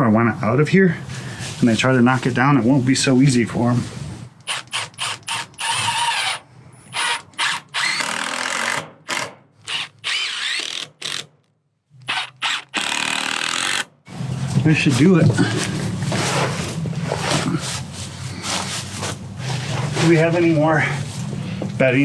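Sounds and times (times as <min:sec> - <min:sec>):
power drill driving screws: 0:04.4 - 0:11.3, 0:12.0 - 0:13.9.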